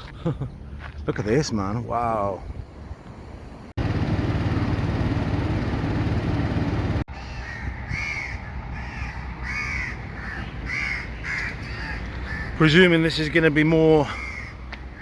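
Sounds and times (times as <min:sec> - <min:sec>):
crows cawing: 0:07.1 - 0:12.8, 0:14.0 - 0:15.0.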